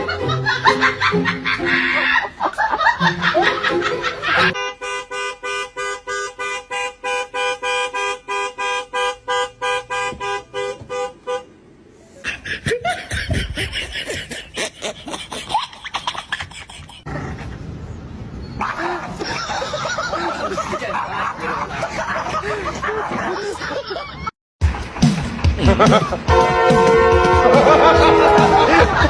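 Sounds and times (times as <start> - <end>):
two-tone horn honking: 4.4 - 11.6, 26.3 - 29.0.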